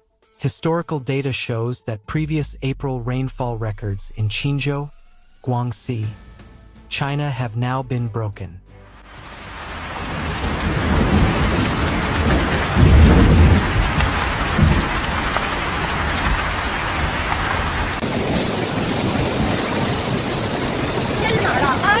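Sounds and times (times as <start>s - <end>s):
heavy rain pouring: 9.0s - 22.0s
thunder rumbling: 9.7s - 22.0s.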